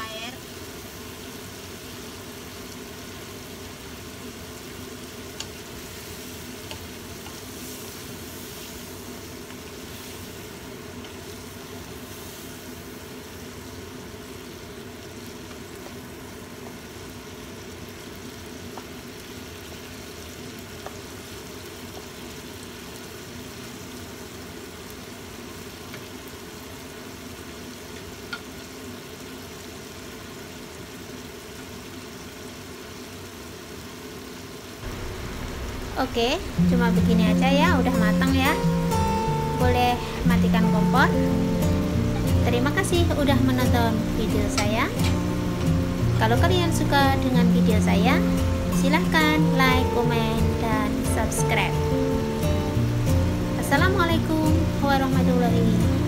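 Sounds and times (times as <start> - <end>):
stir-fry sizzling in a wok: 0.0 - 56.0
steady low hum: 34.8 - 55.5.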